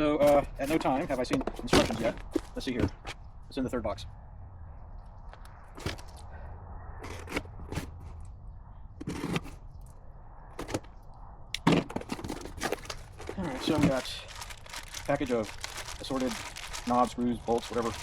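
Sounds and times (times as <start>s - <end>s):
cardboard packaging being opened: 12.1s - 18.0s.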